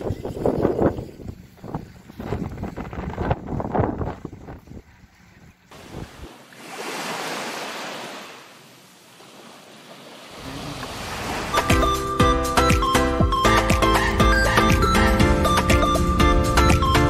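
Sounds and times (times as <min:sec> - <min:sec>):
wind buffeting microphone: 0:00.0 - 0:06.3.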